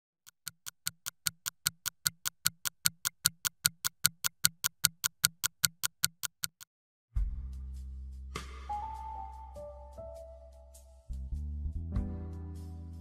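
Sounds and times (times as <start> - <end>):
fast clock-like ticking: 0.3 - 6.7.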